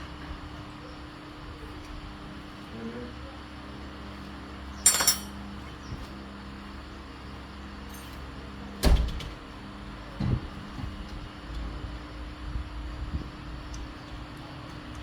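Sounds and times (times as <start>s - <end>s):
metal tools clinking: 4.8s - 5.4s.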